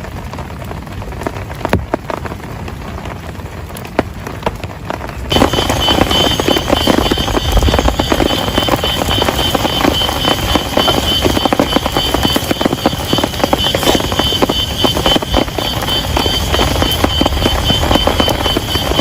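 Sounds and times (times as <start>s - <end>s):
heavy rain patter: 0.0s - 19.0s
steady high-pitched tone: 5.3s - 19.0s.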